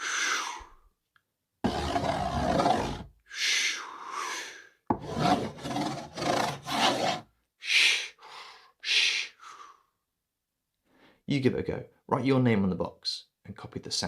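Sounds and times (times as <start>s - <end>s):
spoon scraping cardboard: 1.6s - 3.1s, 4.9s - 7.2s.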